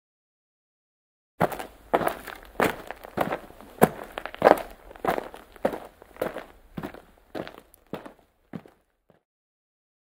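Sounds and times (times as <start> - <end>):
footsteps on wooden deck: 1.4 - 8.8.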